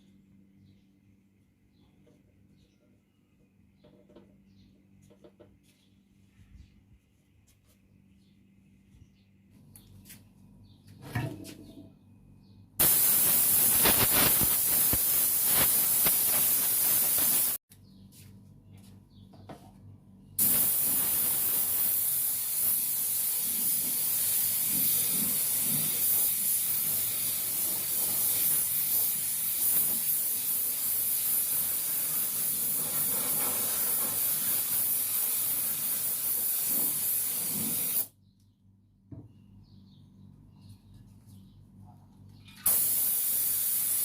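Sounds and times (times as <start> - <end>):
high hiss of spraying: 12.8 - 17.6, 20.4 - 38.1, 42.7 - 44.0.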